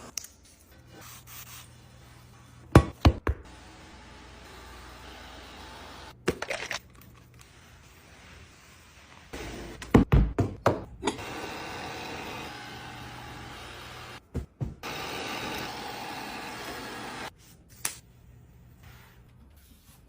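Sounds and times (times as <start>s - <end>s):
knocks and thunks: 14.2s - 14.8s.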